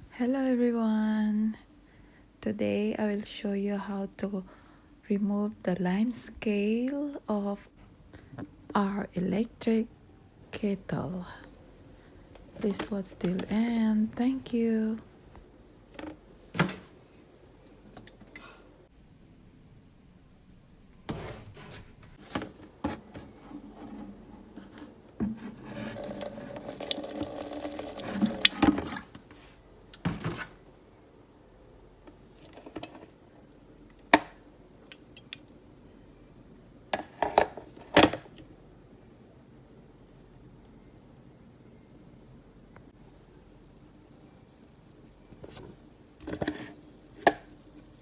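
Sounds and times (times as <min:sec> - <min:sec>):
liquid pouring into a kettle: 0:25.6 - 0:29.2.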